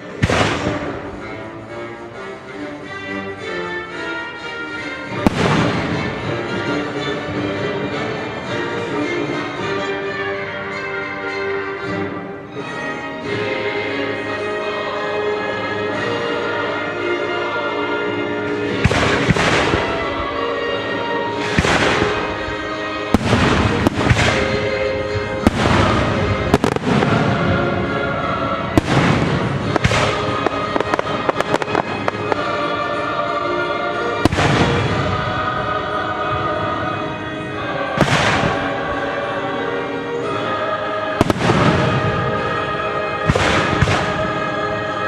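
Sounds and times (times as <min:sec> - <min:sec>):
fireworks crackling: 0:00.0 - 0:02.6, 0:05.1 - 0:06.9, 0:18.8 - 0:20.5, 0:21.3 - 0:35.5, 0:41.2 - 0:44.7
orchestral music: 0:00.0 - 0:45.0
fireworks booming: 0:00.1 - 0:01.5, 0:05.2 - 0:06.6, 0:18.8 - 0:20.1, 0:21.4 - 0:22.5, 0:23.1 - 0:27.8, 0:28.7 - 0:32.8, 0:34.1 - 0:35.3, 0:38.0 - 0:38.8, 0:41.2 - 0:42.4, 0:43.2 - 0:44.4.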